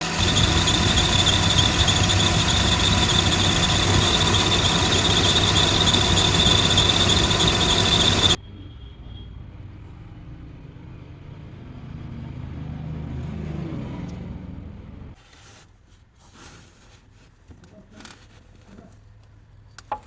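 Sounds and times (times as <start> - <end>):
car engine running: 0.0 - 8.4
high-pitched belt pulley squeal: 0.0 - 9.4.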